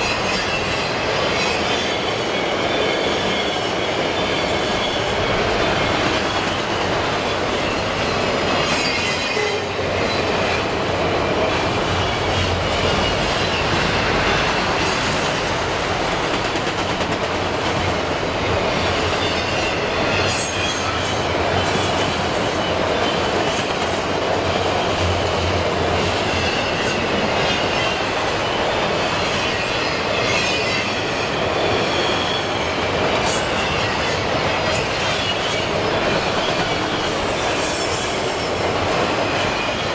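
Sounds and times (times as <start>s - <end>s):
high wheel squeals: 0.0s - 6.5s, 19.1s - 21.2s, 34.8s - 39.9s
train wheels rumbling on rails: 0.0s - 39.9s.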